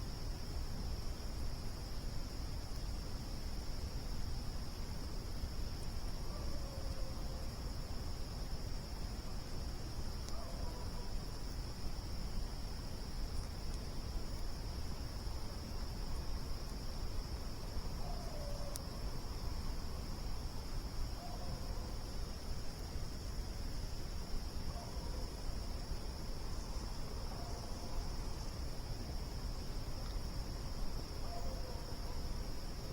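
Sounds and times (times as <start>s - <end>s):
crickets chirping: 0.0s - 32.9s.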